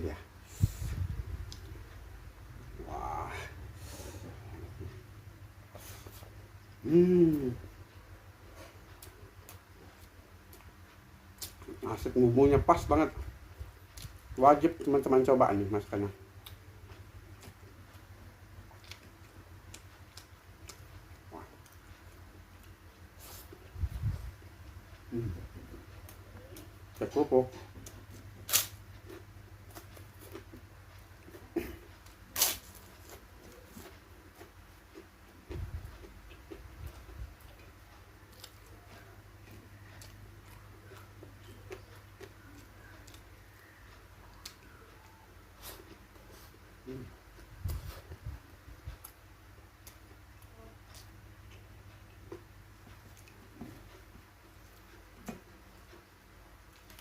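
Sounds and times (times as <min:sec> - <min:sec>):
low room hum: 0:00.0 - 0:57.0
person chewing food: 0:16.3 - 0:23.8, 0:27.6 - 0:57.0.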